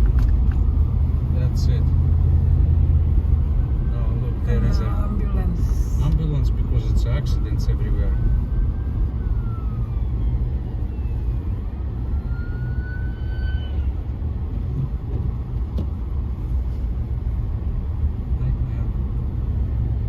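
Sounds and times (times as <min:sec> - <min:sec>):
car interior rumble: 0:00.0 - 0:20.0
faint ambulance siren wailing: 0:06.7 - 0:14.1.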